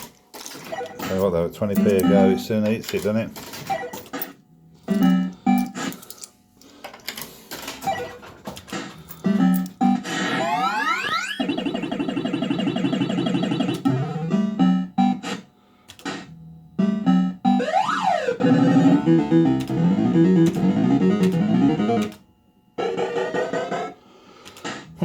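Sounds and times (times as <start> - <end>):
fruit machine electronic tunes: 9.3 - 15.3, 16.8 - 22.2
tone sweeping up and down: 10.3 - 14.8.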